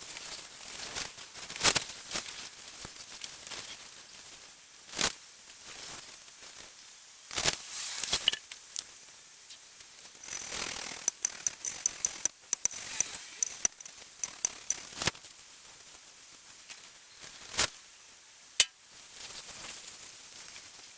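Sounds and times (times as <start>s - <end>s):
ringing metallic clicks: 10.2s - 15.0s
metal scraping on metal: 10.2s - 15.1s.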